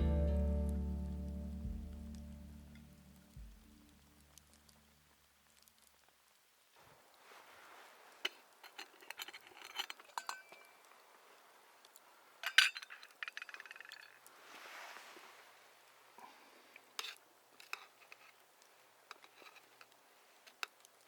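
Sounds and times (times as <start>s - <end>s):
small ticks: 3.3s - 6.4s
cooking gear clinking: 8.2s - 10.9s, 12.4s - 14.3s.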